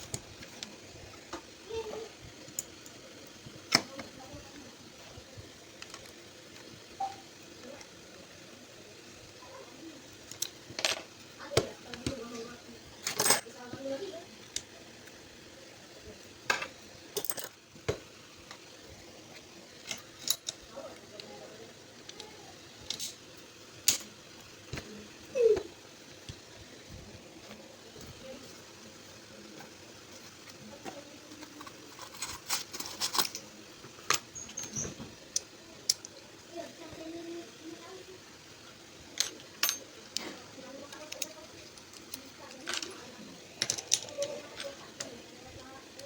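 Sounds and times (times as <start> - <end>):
small hard parts clicking: 0.0 - 8.0, 10.2 - 15.2, 19.8 - 23.2, 23.8 - 26.4, 30.2 - 37.3, 39.1 - 46.0
small metal parts clinking: 10.2 - 11.2, 13.0 - 13.6, 16.5 - 17.6, 19.8 - 21.3, 31.3 - 36.2, 39.2 - 45.2
thin squeak: 34.4 - 35.0.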